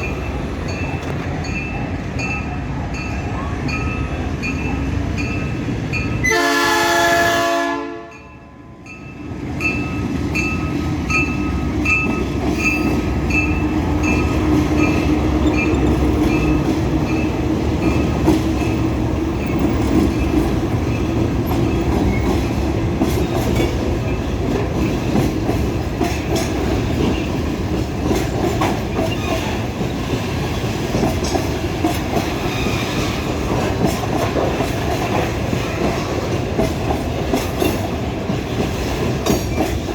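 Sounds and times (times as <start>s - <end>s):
locomotive horn blast: 6.2s - 8.2s.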